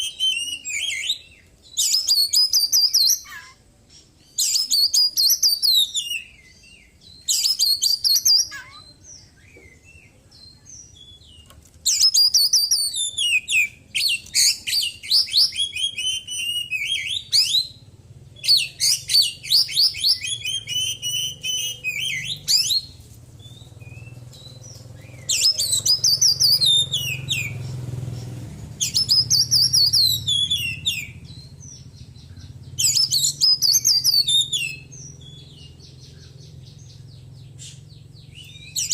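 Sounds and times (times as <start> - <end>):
bird trilling song: 0.0 - 38.9.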